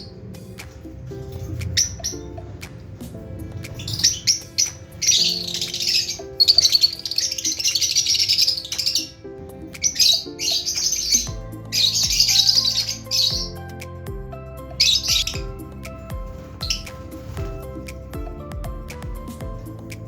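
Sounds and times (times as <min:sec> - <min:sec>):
lovebirds chirping and squawking: 0:00.0 - 0:13.8, 0:14.6 - 0:20.0
background music: 0:00.0 - 0:20.0.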